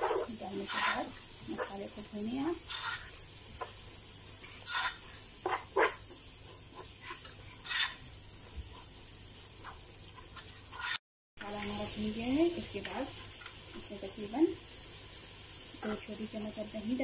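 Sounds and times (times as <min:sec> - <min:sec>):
spatula scraping a pan: 0:00.0 - 0:01.9, 0:02.5 - 0:03.8, 0:04.4 - 0:08.1, 0:09.6 - 0:11.0
masala sizzling in a pot: 0:00.0 - 0:17.0.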